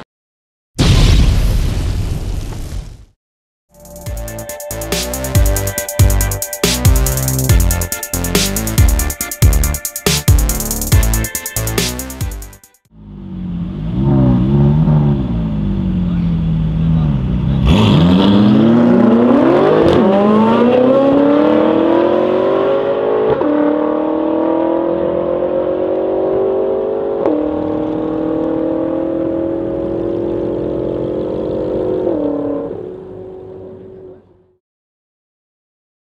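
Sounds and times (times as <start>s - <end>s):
car engines accelerating hard: 13.0s - 34.4s.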